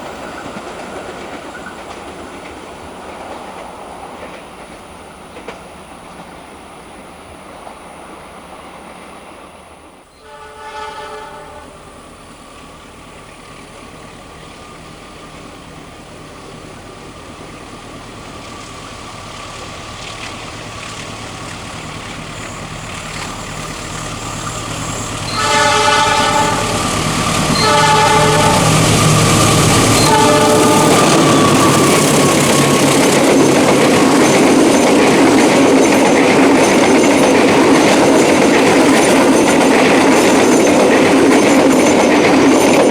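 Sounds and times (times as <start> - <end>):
train running past: 0.0 - 42.9
train horn blasts: 10.1 - 12.0, 24.2 - 33.2
diesel locomotive rumble: 10.3 - 42.9.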